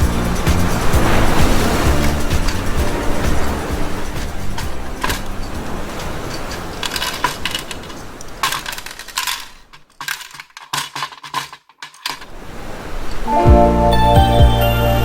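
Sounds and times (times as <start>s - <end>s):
background music: 0.0s - 6.8s, 13.3s - 15.0s
plastic parts clicking: 6.3s - 12.3s.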